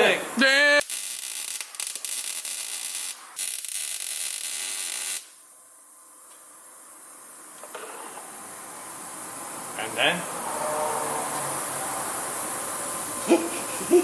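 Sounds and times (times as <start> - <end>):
faint steady hiss: 0.0 - 10.4
welding arc crackling hiss: 0.3 - 10.3, 12.1 - 14.0.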